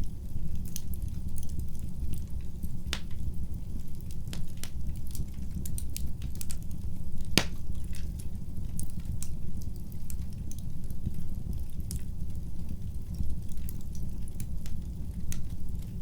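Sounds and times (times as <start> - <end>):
fireplace fire crackling: 0.0 - 16.0
low rumble of fire: 0.0 - 16.0
sharp pops from fire: 0.6 - 10.7.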